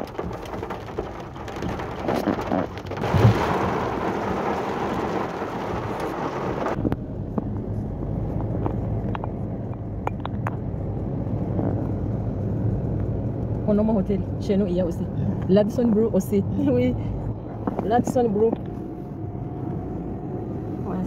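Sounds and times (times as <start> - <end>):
heavy rain on car roof: 0.0 - 6.8
car engine and tyres hum: 0.0 - 21.0
low rumble: 0.0 - 21.0.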